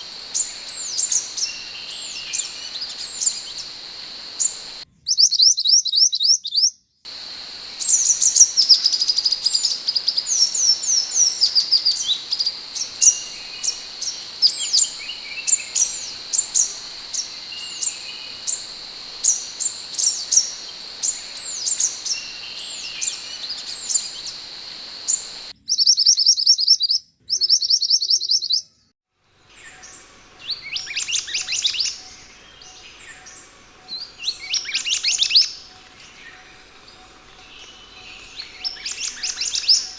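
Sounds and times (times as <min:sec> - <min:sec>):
high-pitched hum: 0:00.0 - 0:04.8, 0:07.1 - 0:25.5.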